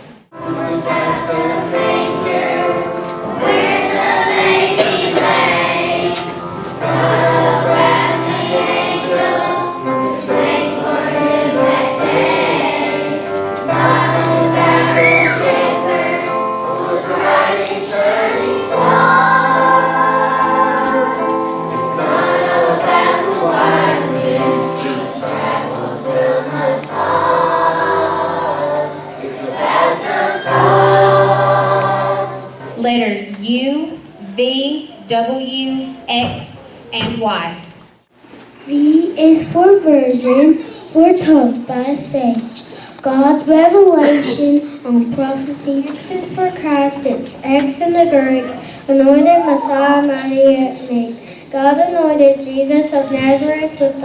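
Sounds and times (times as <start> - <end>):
children's choir singing: 0.3 - 32.8, 46.0 - 50.7
musical accompaniment: 0.3 - 32.8.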